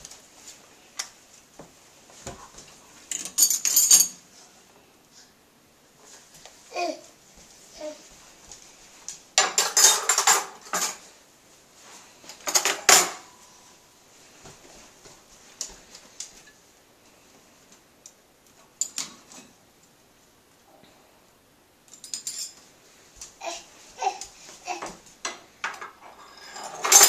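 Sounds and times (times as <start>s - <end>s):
silverware clinking: 3.1s - 4.2s, 9.4s - 11.0s, 21.9s - 22.6s, 25.3s - 27.0s.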